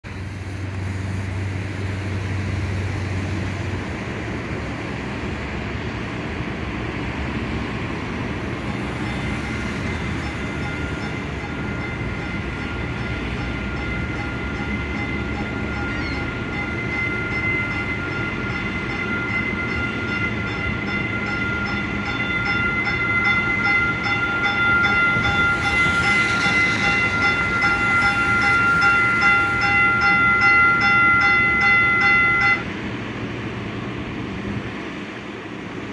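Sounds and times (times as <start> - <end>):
train running noise: 0.0 - 35.9
high multi-tone brake squeal: 9.0 - 20.8, 24.6 - 32.6.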